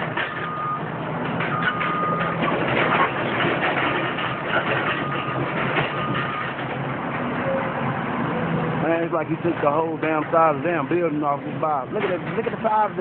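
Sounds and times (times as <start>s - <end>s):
knocks and clatter of demolition: 0.0s - 7.3s, 11.8s - 13.0s
demolition machinery running: 0.0s - 7.5s, 8.7s - 13.0s
backup alarm beeping: 0.3s - 0.9s, 1.5s - 2.4s.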